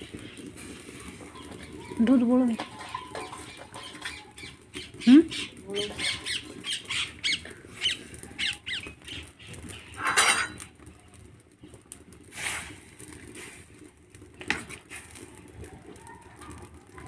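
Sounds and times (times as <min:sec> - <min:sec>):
birds chirping: 0:00.0 - 0:10.6
bird squawking: 0:03.6 - 0:08.9.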